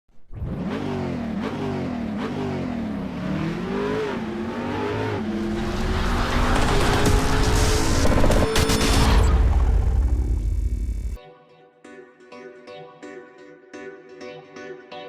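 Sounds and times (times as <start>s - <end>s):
motorcycle engine revving: 0.3s - 11.2s.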